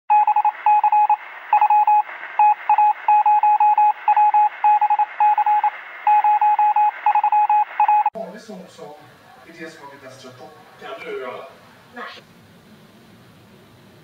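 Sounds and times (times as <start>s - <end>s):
morse code beeps: 0.1s - 8.1s
radio background hiss: 4.0s - 6.1s, 7.6s - 12.3s.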